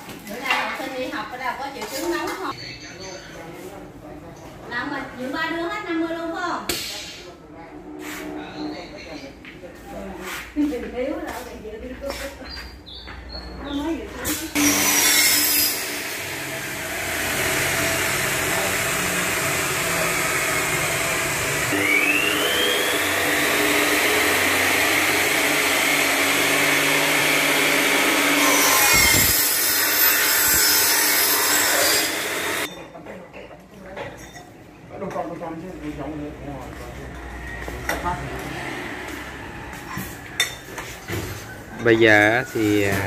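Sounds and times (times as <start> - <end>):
saw blade screeching through metal: 14.3 - 32.8, 39.9 - 43.0
saw motor humming: 14.6 - 32.7.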